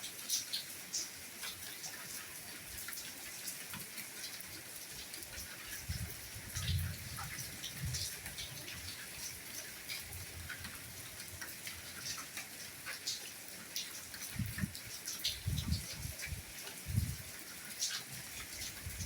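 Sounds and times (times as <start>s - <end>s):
soft rainfall with pattering drops: 0.0s - 19.0s.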